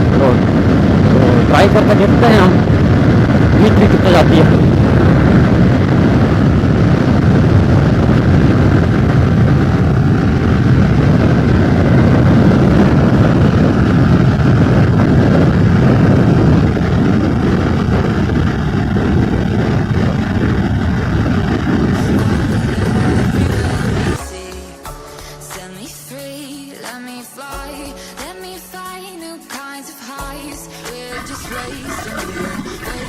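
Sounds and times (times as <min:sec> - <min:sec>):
wind rush over microphone: 0:00.0 - 0:24.3, 0:31.1 - 0:33.0
motorcycle engine running: 0:02.6 - 0:24.2.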